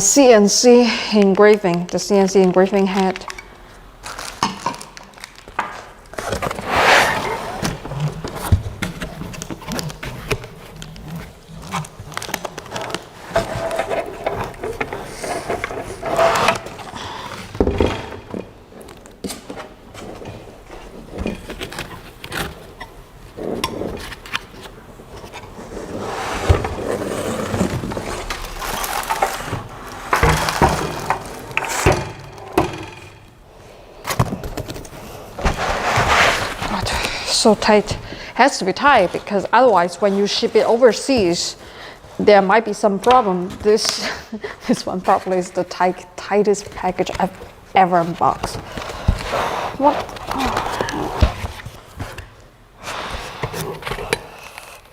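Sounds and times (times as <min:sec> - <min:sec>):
packaging scraping and rustling: 0:03.0 - 0:17.6, 0:19.9 - 0:32.4, 0:34.1 - 0:37.8
knocks and clicks of packaging: 0:07.6 - 0:25.4, 0:27.6 - 0:33.2.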